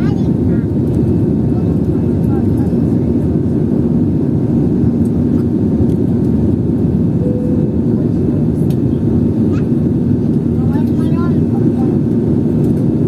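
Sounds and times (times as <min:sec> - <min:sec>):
jet engines rumbling in cabin: 0:00.0 - 0:13.0
faint constant hum: 0:06.1 - 0:12.4
brief higher tone: 0:07.2 - 0:08.2.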